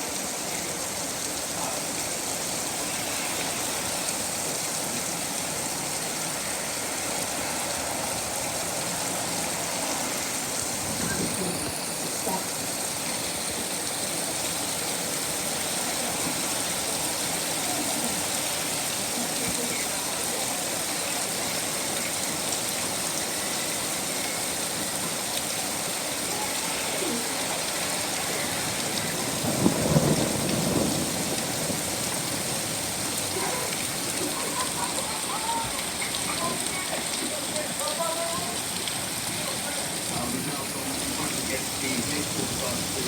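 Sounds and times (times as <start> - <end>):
steady rain falling: 0.0 - 43.0
thunder rumble: 10.1 - 13.6, 27.0 - 35.0.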